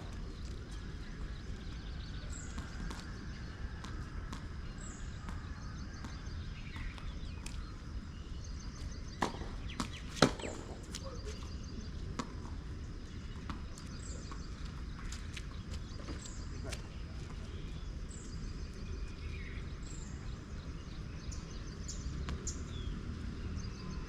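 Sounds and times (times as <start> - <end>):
tennis ball knocks: 9.2 - 10.9.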